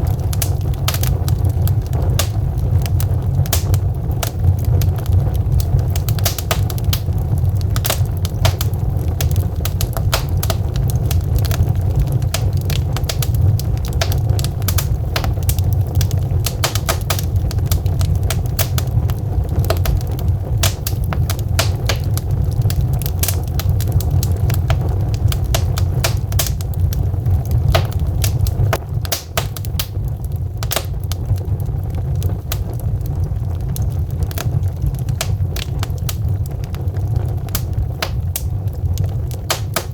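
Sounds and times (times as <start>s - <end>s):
fire low rumble: 0.0s - 39.9s
logs crackling and popping: 0.0s - 39.9s.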